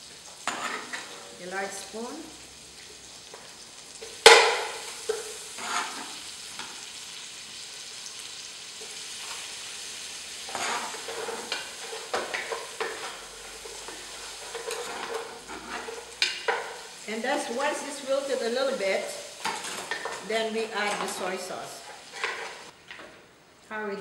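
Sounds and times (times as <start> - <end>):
tomatoes sizzling in hot oil: 0.0 - 22.8
spoon scraping a pot: 0.5 - 1.2, 5.0 - 6.2, 10.5 - 16.8, 19.4 - 22.7.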